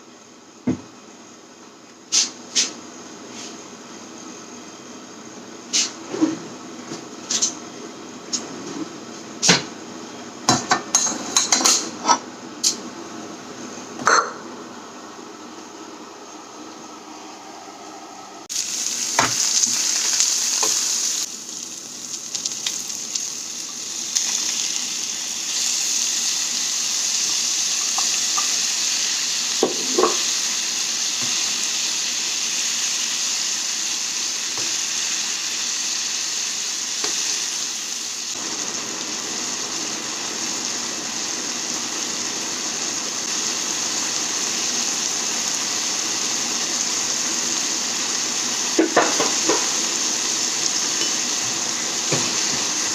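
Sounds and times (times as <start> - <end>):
food sizzling in hot oil: 18.5 - 52.9.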